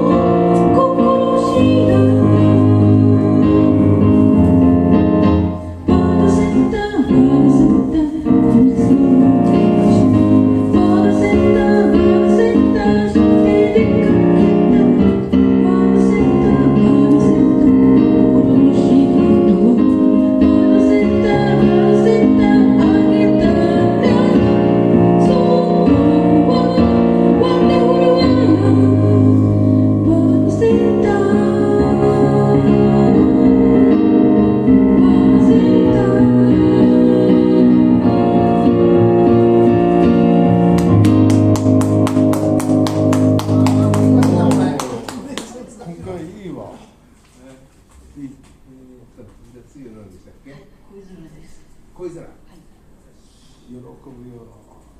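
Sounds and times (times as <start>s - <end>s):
keyboard: 0.0s - 45.3s
person singing: 5.8s - 38.6s.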